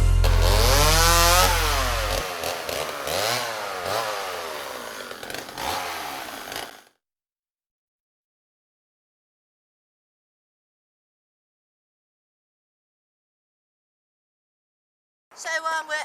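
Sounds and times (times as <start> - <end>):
small engine revving: 0.0 - 7.0.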